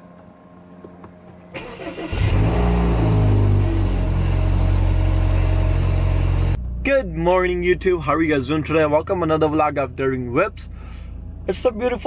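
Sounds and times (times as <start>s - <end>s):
car starter cranking: 1.5s - 6.5s
car engine revving and idling: 1.6s - 12.0s.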